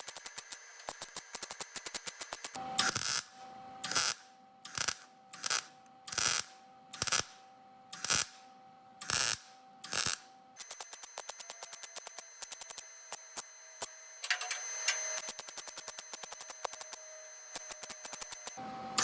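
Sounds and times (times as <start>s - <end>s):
welder crackling bursts: 0.0s - 7.3s, 7.9s - 8.4s, 9.0s - 12.8s
welder hum: 0.0s - 19.0s.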